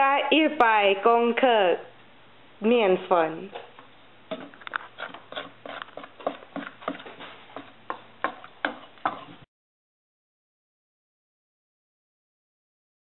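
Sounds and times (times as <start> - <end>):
utensil knocking against mixing bowl: 4.3 - 9.4.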